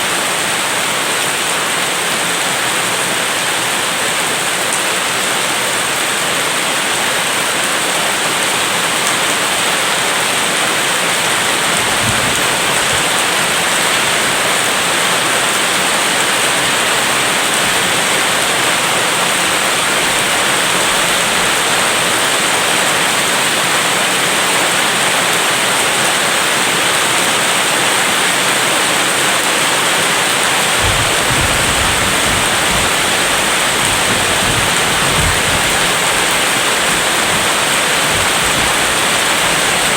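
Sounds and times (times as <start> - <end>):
rain falling: 0.0 - 39.9
distant thunder rumble: 11.0 - 18.1, 30.0 - 39.9.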